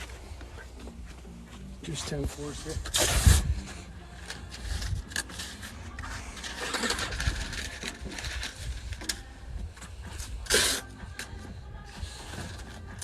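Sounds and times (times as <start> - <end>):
masking tape ripping: 2.8 - 3.6, 10.4 - 10.9.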